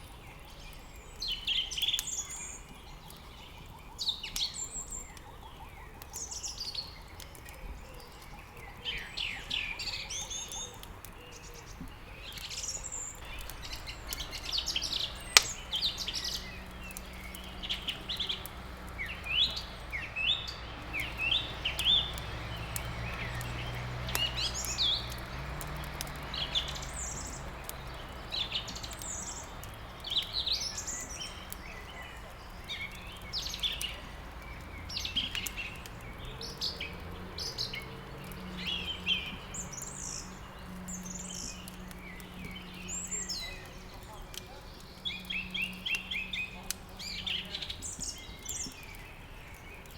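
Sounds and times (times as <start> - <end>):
songbirds chirping and singing: 0.0 - 49.9
sharp crack: 10.1 - 49.0.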